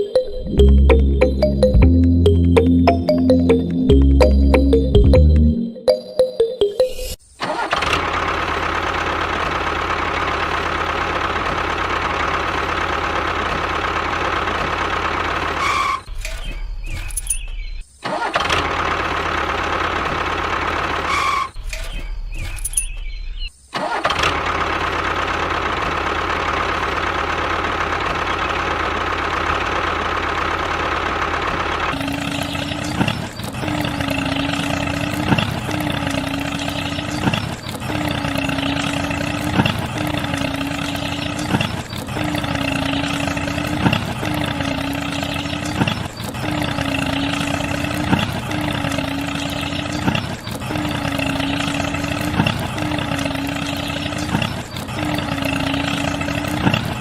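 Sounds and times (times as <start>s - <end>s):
small motor running: 25.5s - 57.0s.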